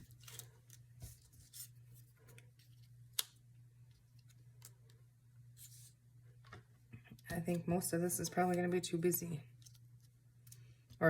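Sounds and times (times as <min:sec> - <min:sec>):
paper rustling: 0:00.0 - 0:03.3
low room hum: 0:00.0 - 0:11.0.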